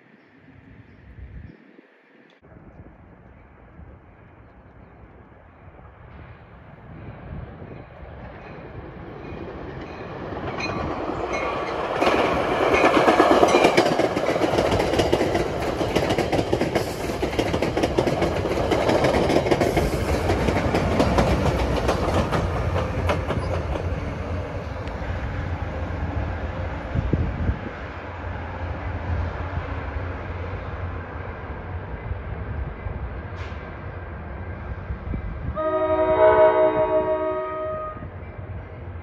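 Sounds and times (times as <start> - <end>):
train wheels rushing on rails: 5.9 - 39.0
wheels clicking over rail joints: 9.3 - 24.0.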